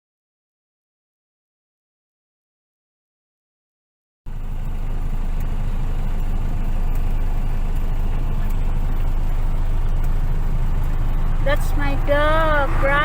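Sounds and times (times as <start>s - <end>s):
vehicle rumble from on board: 4.3s - 13.0s.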